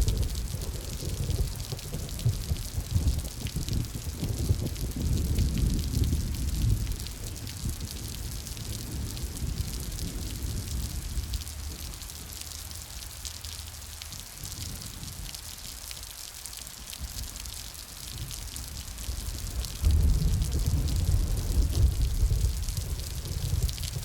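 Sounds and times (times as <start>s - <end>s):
steady rain: 0.0s - 24.0s.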